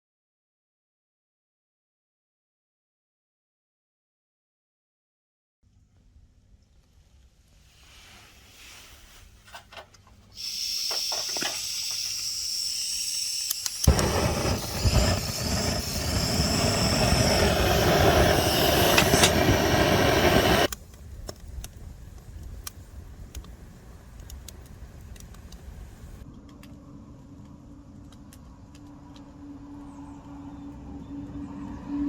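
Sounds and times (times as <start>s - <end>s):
strong wind rushing: 13.9s - 20.7s
wind gusts buffeting microphone: 13.9s - 26.2s.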